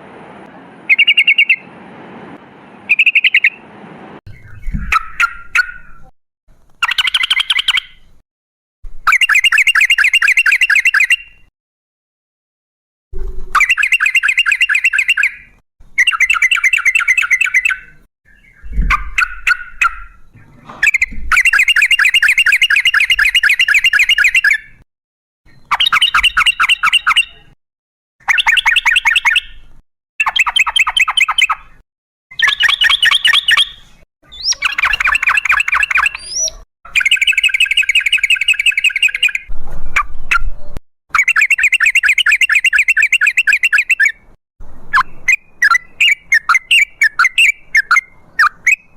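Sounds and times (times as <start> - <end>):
bulbul singing: 0.5 - 1.7, 2.4 - 3.7, 6.8 - 8.1, 13.6 - 24.8, 28.2 - 39.5, 41.1 - 44.3, 44.9 - 48.9.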